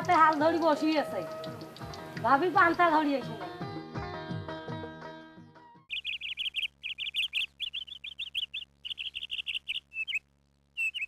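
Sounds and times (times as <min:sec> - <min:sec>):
small bird chirping: 0:05.9 - 0:11.0.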